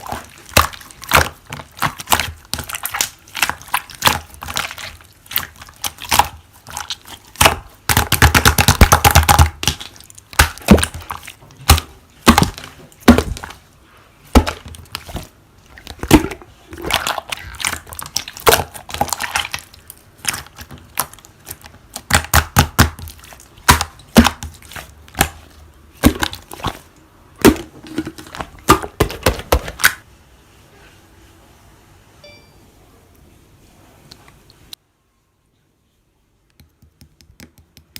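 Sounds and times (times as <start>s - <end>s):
slime crackling: 0.0s - 13.7s, 14.3s - 27.6s.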